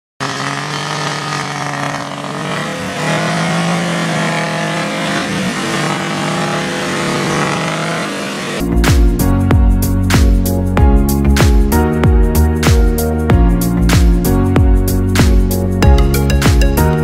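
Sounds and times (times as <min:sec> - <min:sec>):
car engine revving under load: 0:00.2 - 0:08.6.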